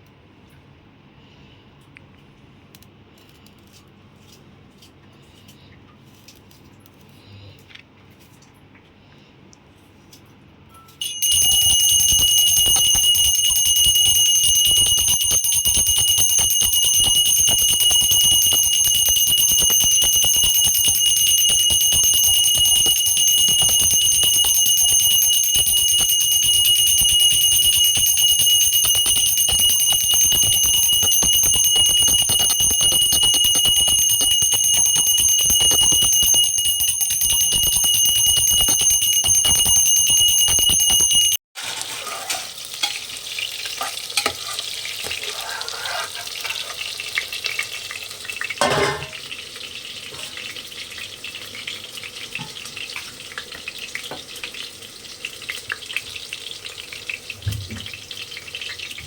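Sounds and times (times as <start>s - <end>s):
high-pitched bell ringing: 11.0s - 41.4s.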